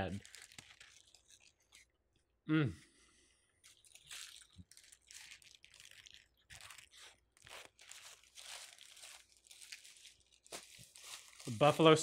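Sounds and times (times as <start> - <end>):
crunchy chewing: 3.6 - 9.9.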